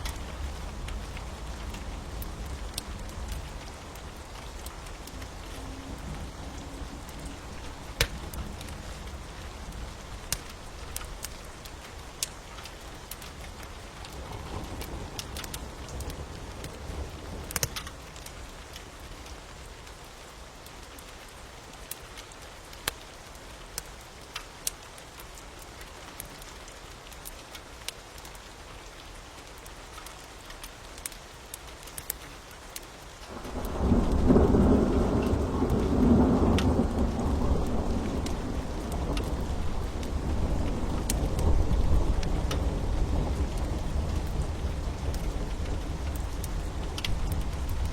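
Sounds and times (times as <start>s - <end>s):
thunder rumbling: 0.0s - 12.3s, 33.3s - 47.9s
steady rain: 0.0s - 47.9s
wood fire crackling: 0.0s - 47.9s.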